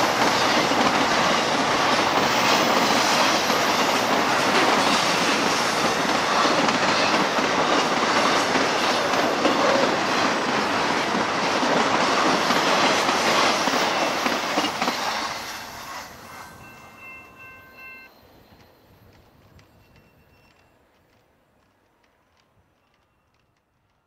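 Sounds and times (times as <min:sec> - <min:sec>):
freight train cars rolling on rails: 0:00.0 - 0:24.0.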